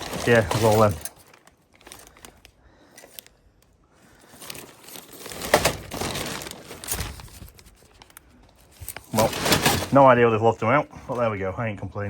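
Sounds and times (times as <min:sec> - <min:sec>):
bag rustling and crinkling: 0:00.0 - 0:11.3.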